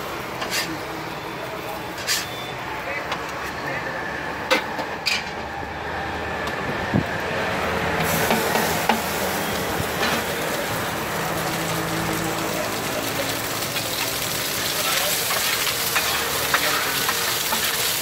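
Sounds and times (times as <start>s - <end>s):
oil sizzling on a griddle: 0.0s - 2.5s, 7.6s - 18.0s.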